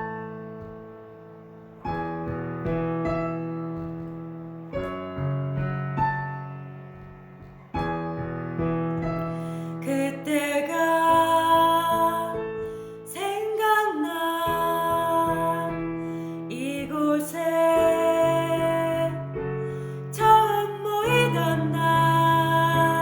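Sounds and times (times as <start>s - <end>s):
keyboard chords: 0.0s - 9.6s.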